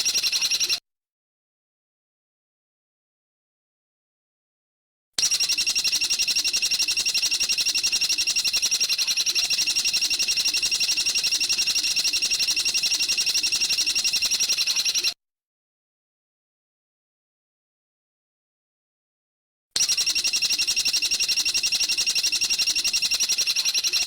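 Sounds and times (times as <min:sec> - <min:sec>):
bird rattling trill: 0:05.2 - 0:15.1, 0:19.8 - 0:24.0.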